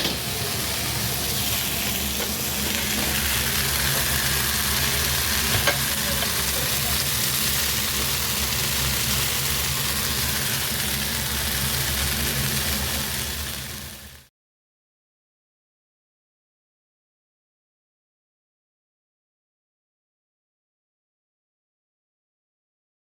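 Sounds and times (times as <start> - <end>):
food frying and sizzling: 0.0 - 14.3.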